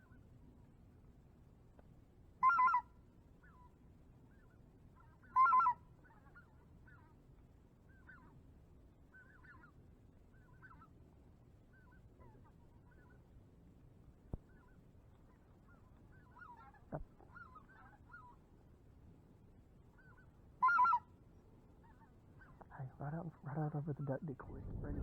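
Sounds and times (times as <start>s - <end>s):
faint short goose calls: 2.4s - 7.2s, 7.8s - 8.4s, 9.1s - 11.0s, 11.7s - 13.3s, 14.3s - 18.4s, 19.9s - 21.2s, 21.8s - 25.0s
loud goose honks: 20.6s - 21.0s.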